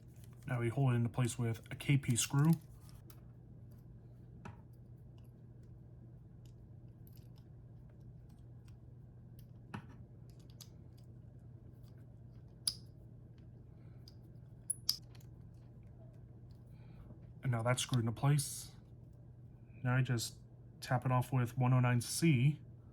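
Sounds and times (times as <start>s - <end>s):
steady low hum: 0.0s - 22.9s
screwdriver clicks and scrapes: 14.7s - 15.0s.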